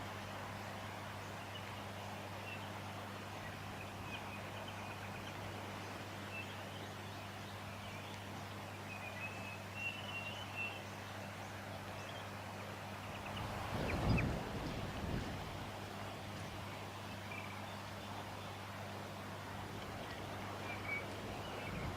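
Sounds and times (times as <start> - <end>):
small birds chirping: 0.8 - 21.9
wind on microphone: 13.2 - 16.7, 21.1 - 21.9.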